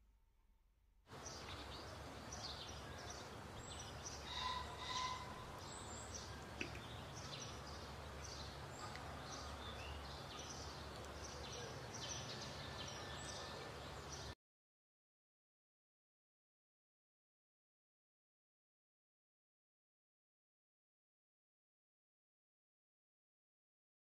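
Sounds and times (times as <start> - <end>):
low outdoor background hum: 1.0 - 14.4
small birds chirping: 1.1 - 14.4.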